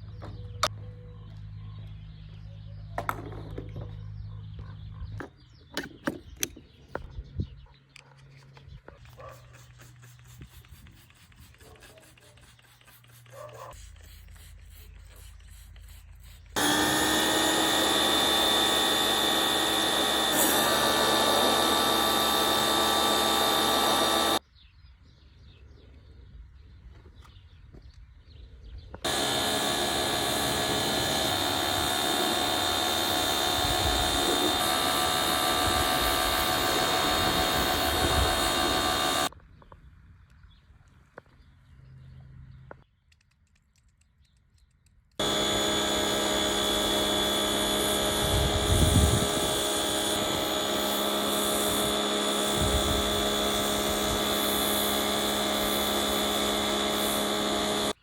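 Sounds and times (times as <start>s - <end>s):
car wash machinery whining: 16.6s - 24.4s, 29.0s - 39.3s, 45.2s - 58.0s.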